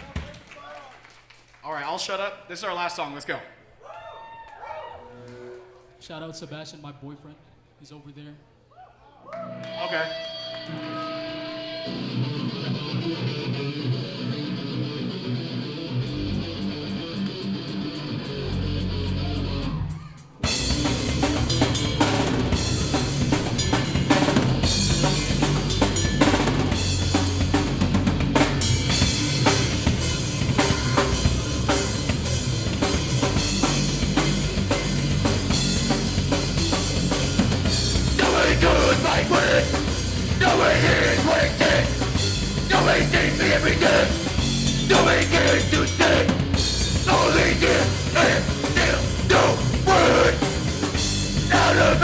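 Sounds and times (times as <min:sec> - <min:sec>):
electric guitar playing: 0:11.4 - 0:19.6
punk band playing loud: 0:11.6 - 0:52.0.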